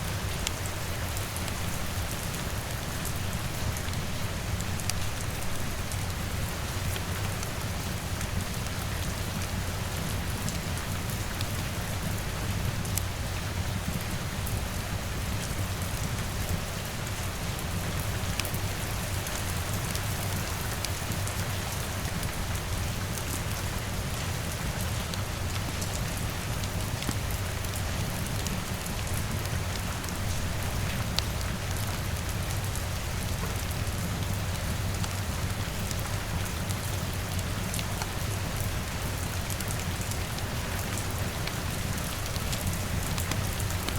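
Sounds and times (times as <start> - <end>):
steady rain hiss: 0.0 - 43.9.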